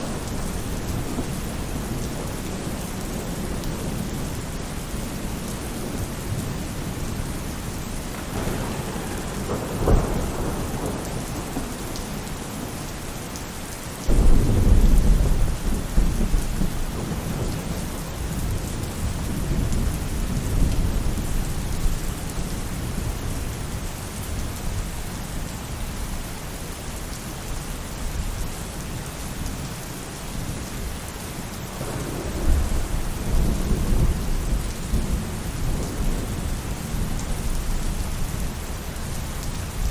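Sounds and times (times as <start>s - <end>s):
loud thunder clap: 0.0s - 4.3s, 8.0s - 13.0s, 14.1s - 21.9s, 31.8s - 38.5s
thunder rolling: 0.0s - 13.4s, 14.1s - 23.3s, 31.7s - 39.9s
rain falling on a roof: 0.0s - 39.9s.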